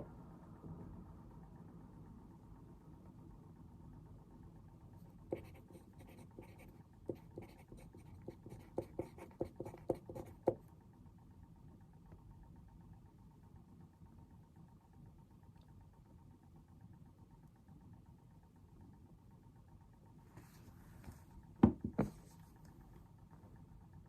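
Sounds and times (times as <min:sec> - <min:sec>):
pen scratching on paper: 0:05.3 - 0:10.6.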